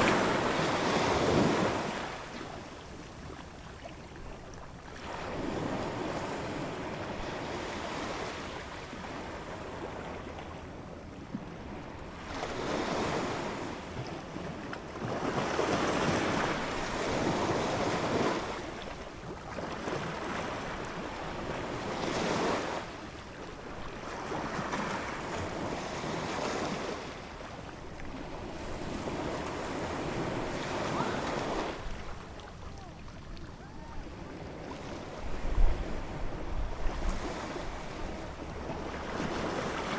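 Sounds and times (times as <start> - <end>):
ocean waves breaking: 0.0 - 3.8, 19.6 - 39.9.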